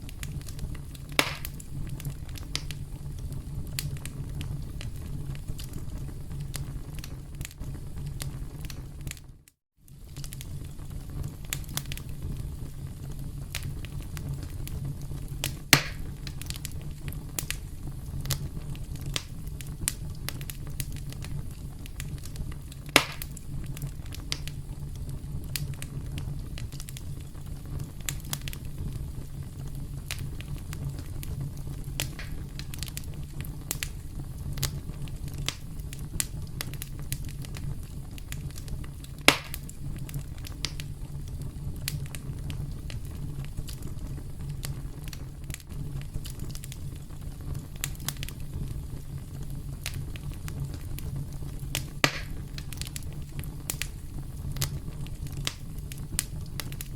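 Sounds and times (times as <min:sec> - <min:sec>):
campfire crackling: 0:00.0 - 0:56.9
loud fire pops: 0:00.0 - 0:56.9.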